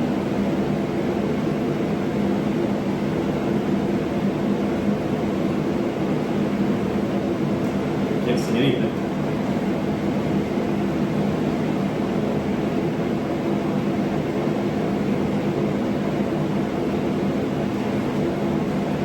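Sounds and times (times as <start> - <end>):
shop machinery humming: 4.4 - 19.0.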